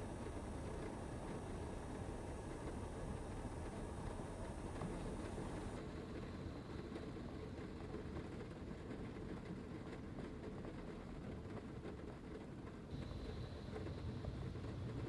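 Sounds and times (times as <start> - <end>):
faint high whine: 0.0 - 5.8
heavy rain drumming on van roof: 0.0 - 5.8, 7.8 - 12.9.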